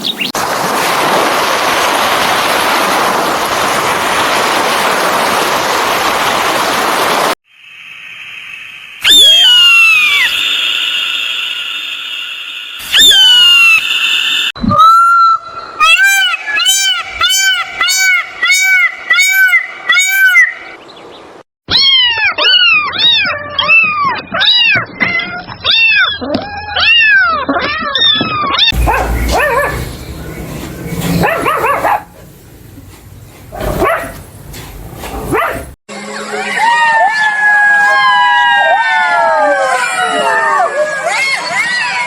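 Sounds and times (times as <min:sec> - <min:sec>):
animals yelping: 0:14.7 - 0:20.6, 0:21.7 - 0:35.8.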